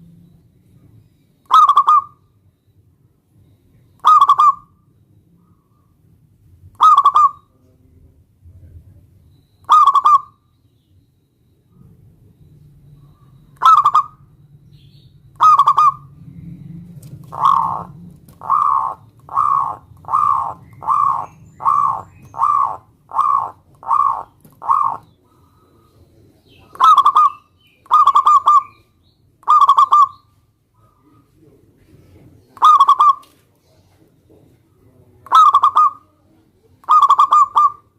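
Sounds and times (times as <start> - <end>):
dove cooing: 1.4 - 2.2, 4.0 - 4.7, 6.8 - 7.7, 9.6 - 10.4, 12.8 - 14.4, 15.3 - 37.9.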